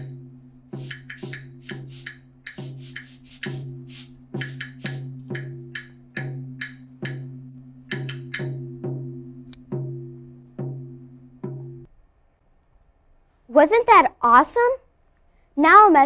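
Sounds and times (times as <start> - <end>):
wood block strikes: 0.0 - 11.9.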